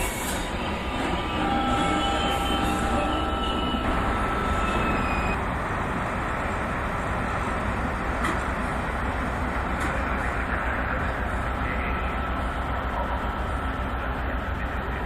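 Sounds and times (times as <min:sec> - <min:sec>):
train wheels rumbling on rails: 0:00.0 - 0:15.0
wheel squeal: 0:00.1 - 0:05.4.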